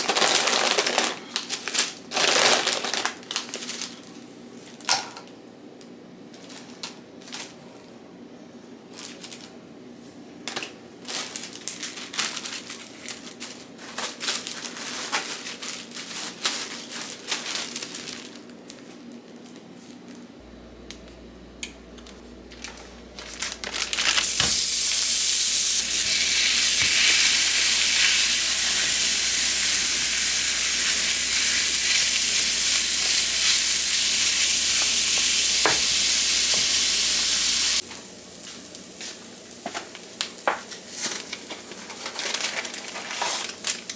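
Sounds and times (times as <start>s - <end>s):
food sizzling in a pan: 24.0s - 40.8s.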